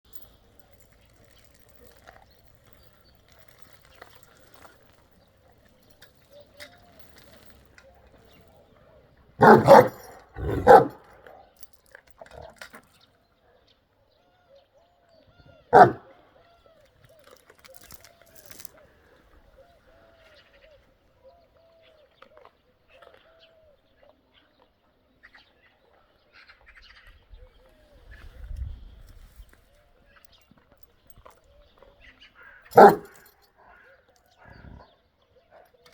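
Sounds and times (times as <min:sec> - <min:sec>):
dog barking deeply: 0:09.4 - 0:11.4, 0:15.7 - 0:16.2, 0:32.7 - 0:33.2.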